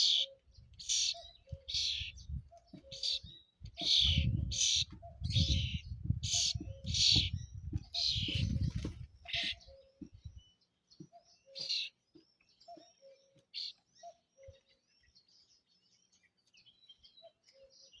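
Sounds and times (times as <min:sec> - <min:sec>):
starling singing: 0:00.0 - 0:09.8.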